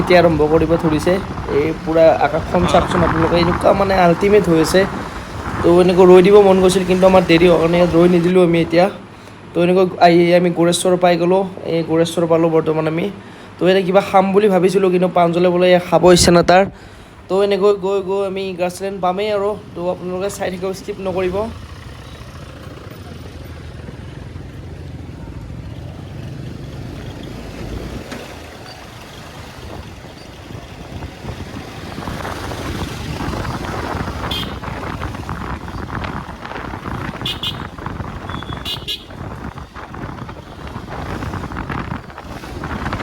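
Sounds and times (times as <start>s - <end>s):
motorcycle engine rumble: 0.0s - 9.2s, 19.1s - 43.0s
road and wind noise: 0.0s - 43.0s
horn toots: 34.2s - 35.0s, 37.1s - 39.3s.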